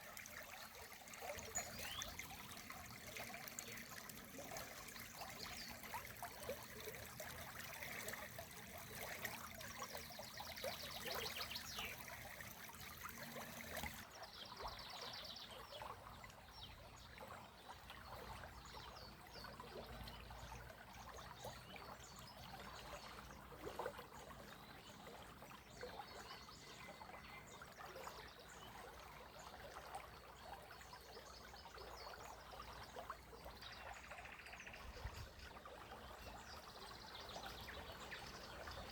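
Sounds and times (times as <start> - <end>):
spring water trickling: 0.0 - 14.2, 28.7 - 38.9
birds singing: 1.5 - 2.2.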